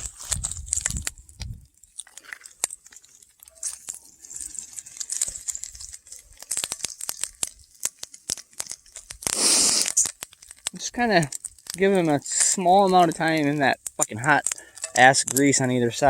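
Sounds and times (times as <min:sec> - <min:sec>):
grease sizzling in a skillet: 0:00.0 - 0:16.0
sharp pops and crackles: 0:00.0 - 0:16.0.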